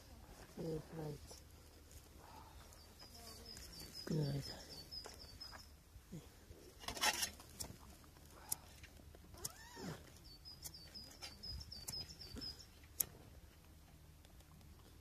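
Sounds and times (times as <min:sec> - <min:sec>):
bird chirping rapidly: 0:03.3 - 0:05.7, 0:10.2 - 0:12.8
sharp clicks: 0:08.4 - 0:14.9.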